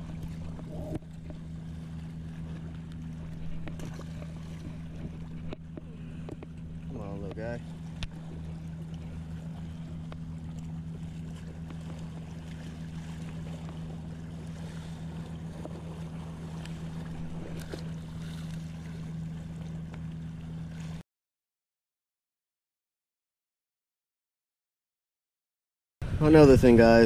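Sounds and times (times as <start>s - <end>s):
low engine hum: 0.0s - 21.0s, 26.0s - 27.0s
wind noise on microphone: 26.0s - 27.0s.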